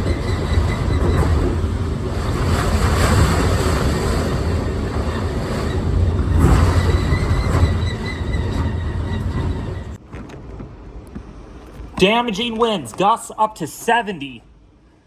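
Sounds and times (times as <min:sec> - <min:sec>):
gusty wind on microphone: 0:00.0 - 0:10.0.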